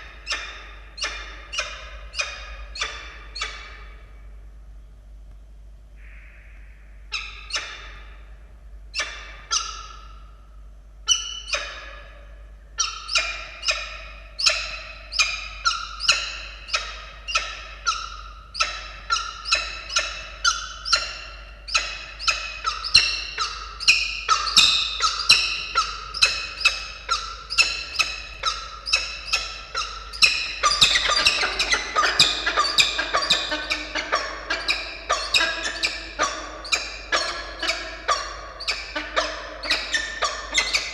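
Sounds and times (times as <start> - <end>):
falcons calling sharply: 21.8 - 38.3.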